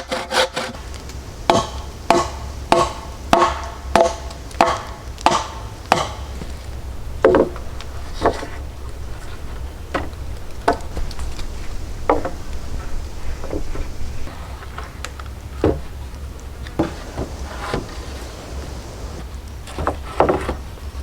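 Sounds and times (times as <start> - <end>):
hand tool knocking on wood: 1.5 - 6.6, 16.8 - 19.2.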